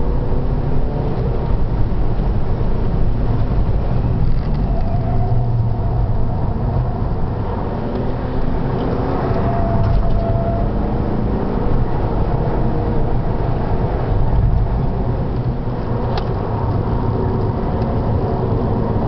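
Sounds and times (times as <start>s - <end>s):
car engine running hard: 0.0s - 19.0s
road and wind noise: 0.0s - 19.0s.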